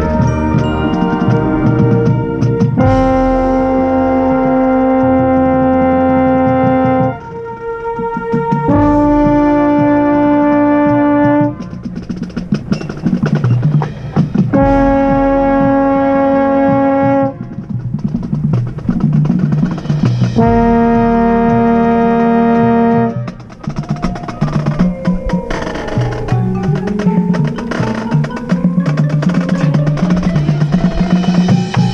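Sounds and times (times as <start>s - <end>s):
baritone horn: 0.0s - 18.0s, 19.4s - 31.9s
brass band chords: 0.0s - 24.9s
snare and drum strokes: 0.0s - 31.9s.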